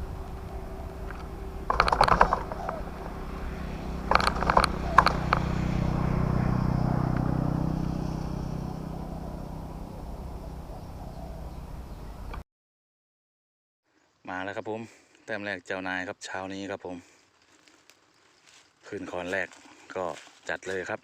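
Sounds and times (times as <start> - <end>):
vehicle engine passing by: 0.0 - 12.4.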